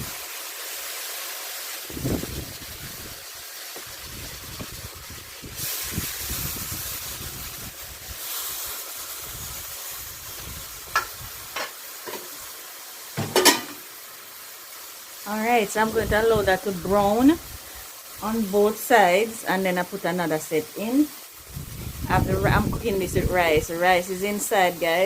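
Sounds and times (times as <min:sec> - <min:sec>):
chicken sizzling in hot oil: 0:00.0 - 0:25.0
wind rumbling on microphone: 0:01.9 - 0:03.2, 0:03.8 - 0:08.2, 0:09.2 - 0:11.5, 0:15.8 - 0:17.6, 0:21.5 - 0:23.7.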